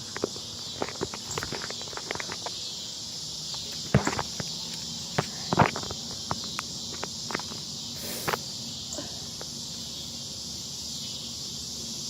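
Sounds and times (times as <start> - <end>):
footsteps crunching on ground: 0.0 - 8.5
high-pitched insect chorus: 0.0 - 12.0.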